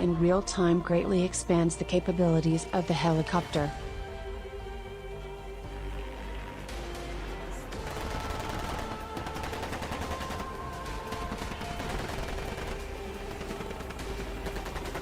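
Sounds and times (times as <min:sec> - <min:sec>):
music: 0:00.0 - 0:15.0
automatic gunfire: 0:07.8 - 0:15.0.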